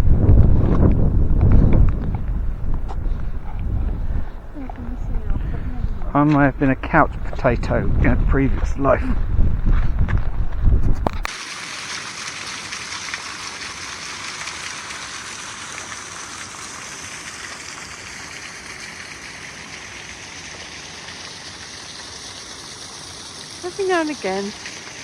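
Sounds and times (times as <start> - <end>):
rushing water hiss: 11.3 - 25.0.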